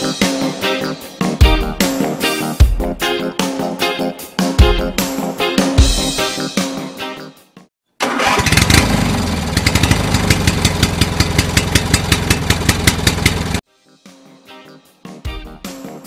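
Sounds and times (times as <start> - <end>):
intro music: 0.0 - 7.6, 13.7 - 16.0
motorcycle engine running: 8.2 - 13.6.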